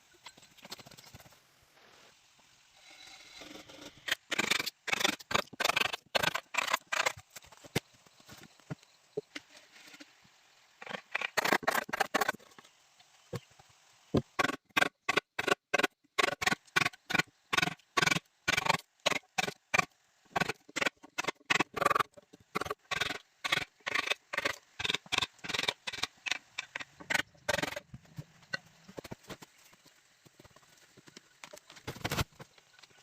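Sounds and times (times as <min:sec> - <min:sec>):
tool striking bamboo: 0:14.2 - 0:27.8.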